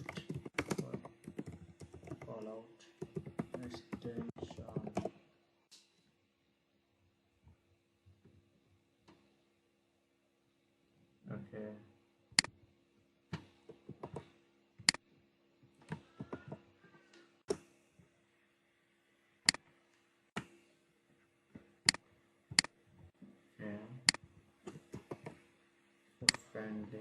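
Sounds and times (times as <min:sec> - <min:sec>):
faint electrical hum: 0:00.0 - 0:27.0
keyboard taps: 0:03.0 - 0:05.1.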